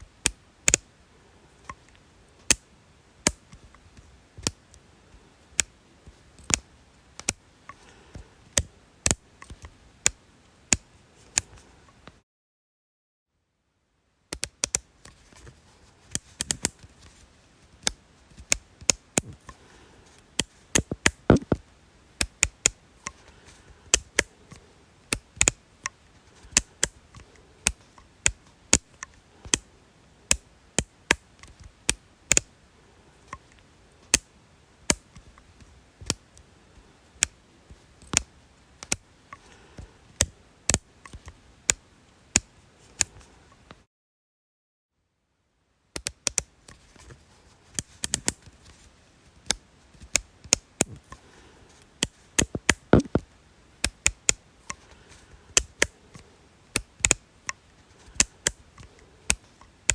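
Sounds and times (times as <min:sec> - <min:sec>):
sharp clicks: 0:20.8 - 0:21.6, 0:52.4 - 0:54.8.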